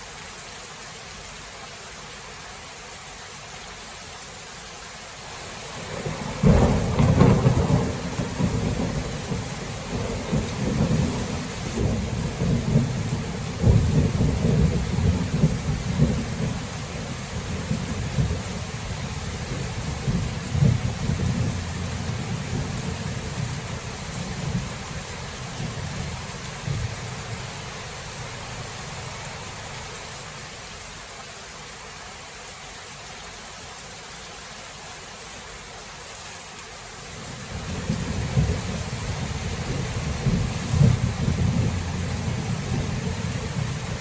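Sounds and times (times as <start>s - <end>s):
heavy rain: 0.0s - 44.0s
rolling thunder: 5.8s - 28.7s, 37.5s - 44.0s.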